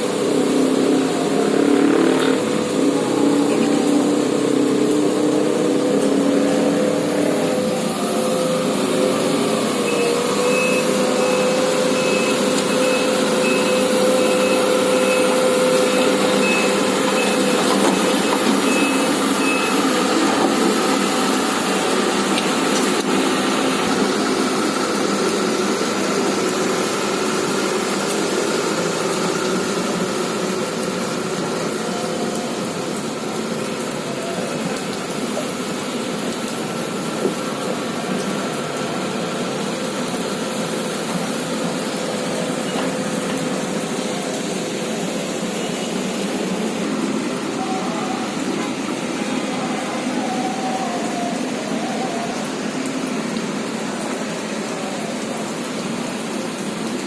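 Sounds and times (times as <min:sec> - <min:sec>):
excavator diesel engine running: 0:00.0 - 0:57.0
high travel alarm beeps: 0:09.8 - 0:20.0.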